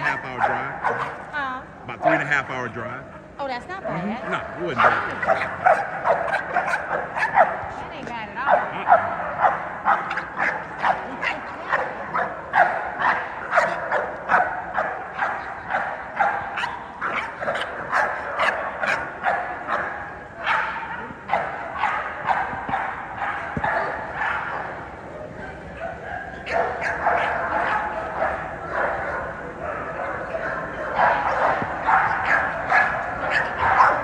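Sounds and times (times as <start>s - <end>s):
dogs barking and yipping: 0.0s - 34.0s.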